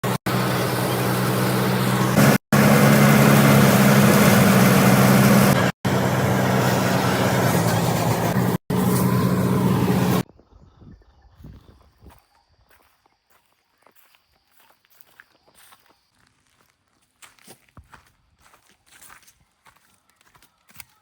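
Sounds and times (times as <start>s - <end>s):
tractor engine running: 0.0s - 10.2s.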